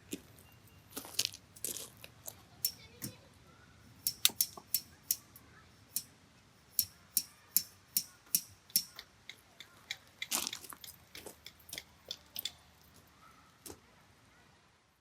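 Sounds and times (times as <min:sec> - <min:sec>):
sharp clicks and knocks: 0:04.0 - 0:05.2, 0:06.8 - 0:12.6.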